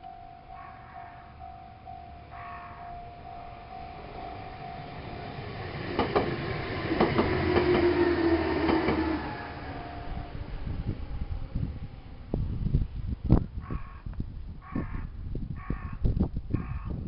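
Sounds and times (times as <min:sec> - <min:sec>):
electric train passing: 0:00.0 - 0:13.6
wheels clicking over rail joints: 0:03.5 - 0:09.8.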